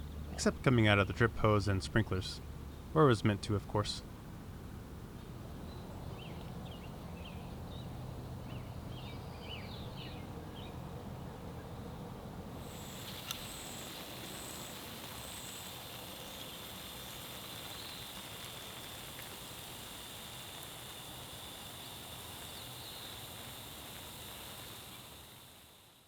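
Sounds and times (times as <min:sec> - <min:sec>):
water spraying from sprinklers: 0:12.5 - 0:26.0.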